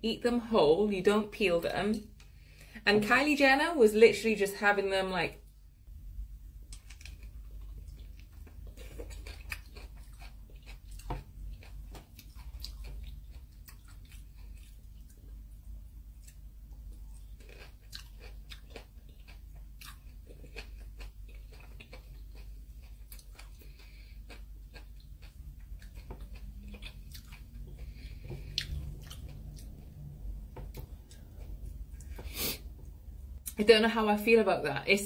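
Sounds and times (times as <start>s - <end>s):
biting and chewing fruit: 6.7s - 15.4s, 16.1s - 32.3s.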